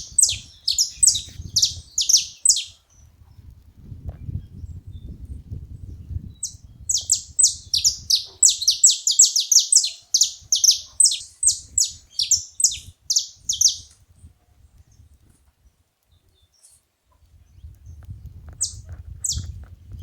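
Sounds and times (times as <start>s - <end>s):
finch calling sharp chips: 0.0s - 2.7s.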